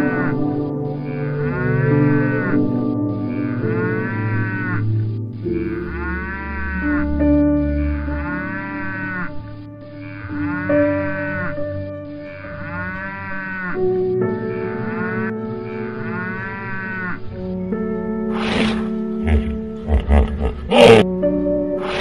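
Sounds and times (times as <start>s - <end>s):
background music with held notes: 0.0s - 22.0s
cattle mooing: 1.0s - 2.6s, 3.3s - 7.2s, 7.8s - 13.9s, 14.6s - 17.4s, 18.3s - 21.1s, 21.8s - 22.0s.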